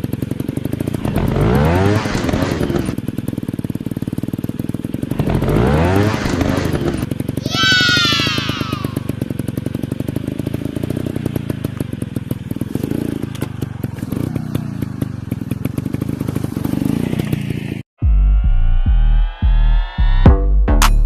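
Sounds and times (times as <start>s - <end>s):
dirt bike engine running: 0.0s - 18.1s
electronic music with bass beat: 18.0s - 21.0s.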